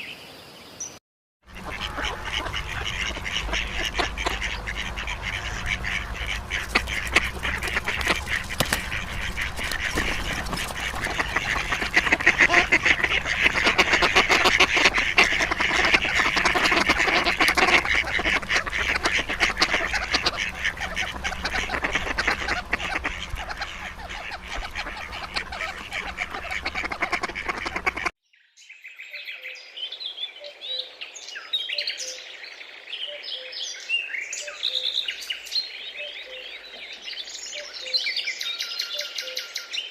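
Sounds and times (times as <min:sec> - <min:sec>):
small birds chirping: 0:00.0 - 0:39.9
large flock of birds calling: 0:01.5 - 0:28.1.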